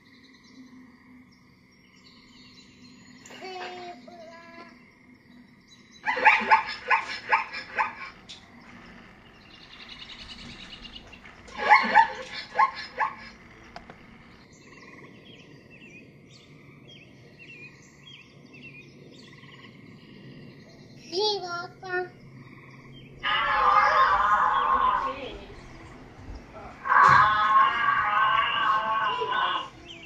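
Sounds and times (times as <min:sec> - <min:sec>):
birds chirping: 0:00.0 - 0:30.0
steady high hum: 0:04.8 - 0:21.2
zebras barking: 0:06.0 - 0:09.8, 0:10.7 - 0:14.3, 0:23.2 - 0:25.6, 0:26.8 - 0:30.0.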